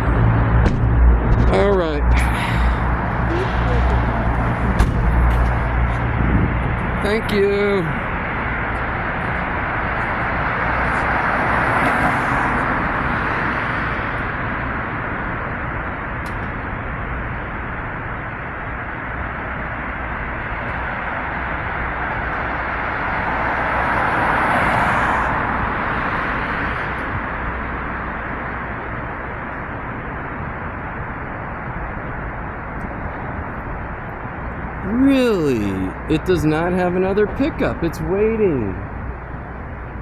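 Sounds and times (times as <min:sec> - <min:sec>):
vehicles passing: 0:00.0 - 0:16.0, 0:21.2 - 0:28.2, 0:32.3 - 0:40.0
road traffic noise: 0:00.0 - 0:40.0.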